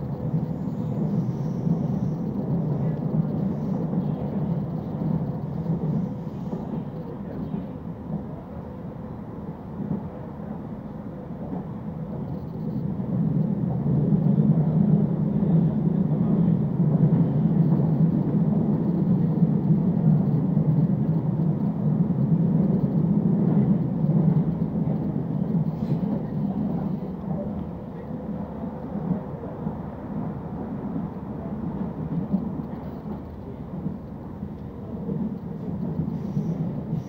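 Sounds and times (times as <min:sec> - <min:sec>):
moving train rumble from inside: 0:00.0 - 0:37.0.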